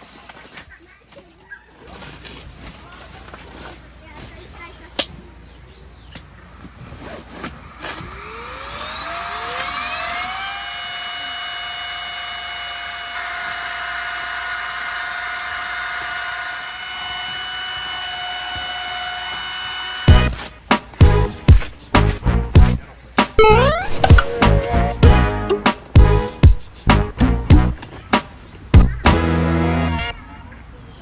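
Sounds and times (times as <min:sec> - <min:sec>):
small electric motor whining: 0:07.7 - 0:20.4.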